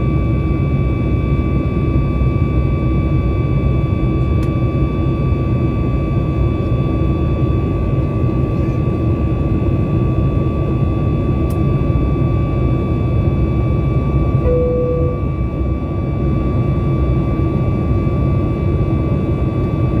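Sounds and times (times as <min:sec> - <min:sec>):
airplane cabin engine rumble: 0:00.0 - 0:20.0
steady whine tones: 0:11.4 - 0:16.7
short tone: 0:14.4 - 0:15.4.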